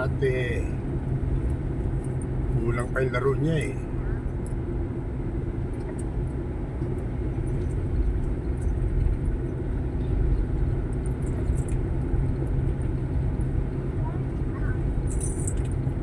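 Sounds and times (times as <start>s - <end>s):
vehicle engine rumble: 0.0s - 16.0s
faint light rattles: 14.5s - 16.0s.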